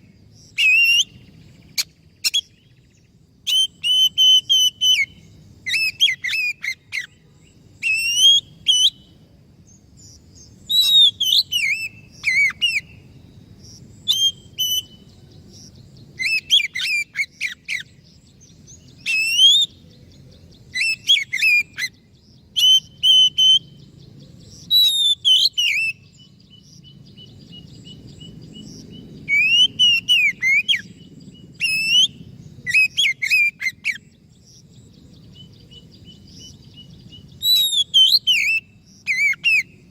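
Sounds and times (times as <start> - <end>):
bird singing whistled phrases: 0.6 - 2.7, 3.5 - 7.2, 7.8 - 9.2, 10.6 - 13.0, 14.0 - 15.1, 16.2 - 18.0, 18.9 - 19.8, 20.7 - 23.9, 24.7 - 26.4, 29.2 - 34.1, 37.4 - 39.8.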